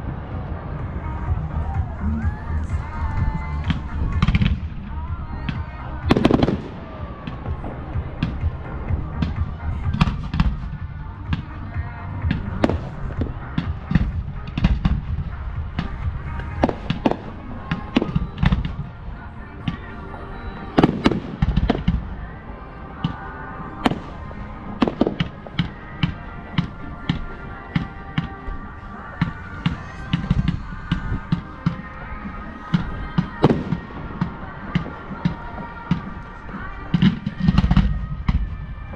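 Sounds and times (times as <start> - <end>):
fireworks bangs: 0.0 - 38.9
low rumble: 0.0 - 38.9.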